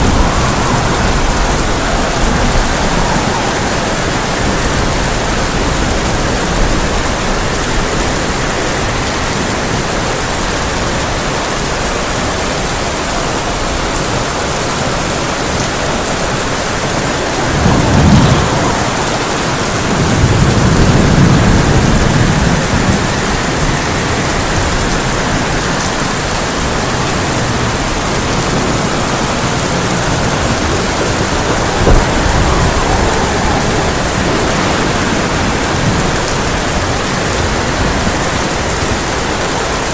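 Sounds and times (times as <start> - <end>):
sharp thunderclap: 0.0 - 7.5, 15.5 - 25.2, 27.4 - 38.4
heavy rain on a tin roof: 0.0 - 39.9
thunder rumbling: 0.0 - 39.9.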